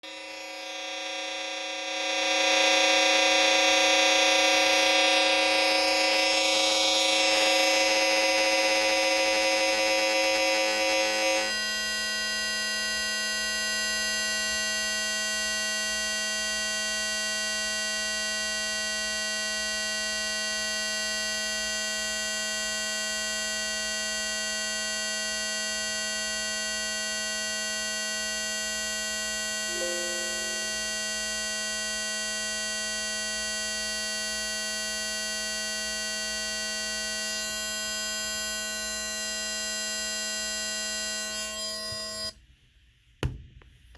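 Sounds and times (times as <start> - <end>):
buzzing electronic tone: 29.7 - 31.8.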